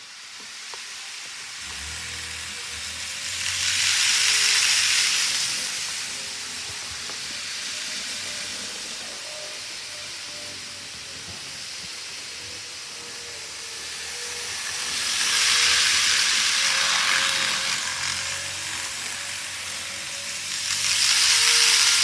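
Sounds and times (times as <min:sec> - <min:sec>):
model train running on track: 0:00.0 - 0:22.0.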